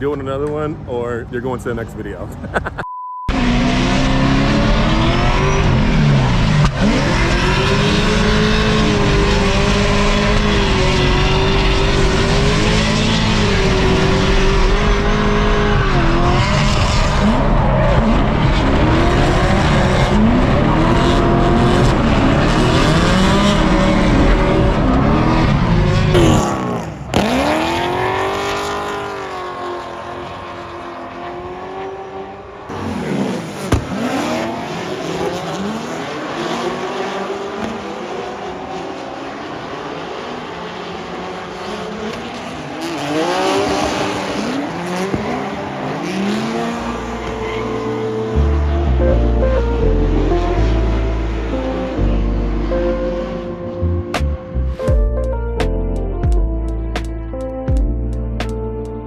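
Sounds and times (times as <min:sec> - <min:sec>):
car engine revving hard: 0:03.3 - 0:49.0.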